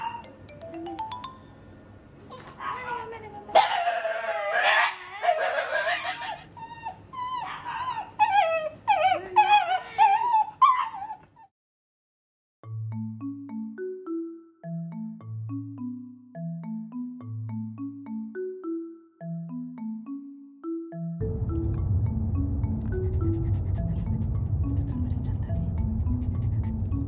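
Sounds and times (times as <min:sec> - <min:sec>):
dog yelping: 0:00.0 - 0:00.3, 0:02.3 - 0:11.5
dog whining: 0:02.3 - 0:11.5.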